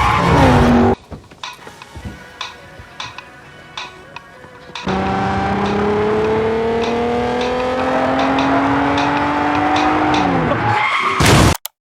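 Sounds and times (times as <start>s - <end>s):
car engine accelerating: 0.0s - 1.1s, 4.6s - 10.8s
tyre and road noise: 0.0s - 11.6s.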